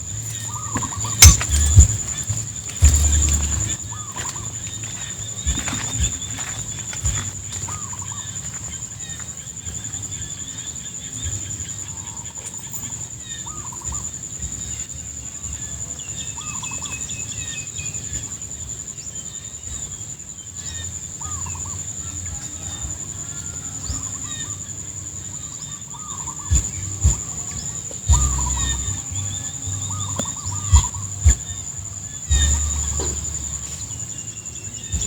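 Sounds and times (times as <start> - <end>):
high-pitched insect drone: 0.0 - 9.5, 20.6 - 35.0
low rumble: 2.8 - 3.8
warbling animal calls: 26.0 - 33.7.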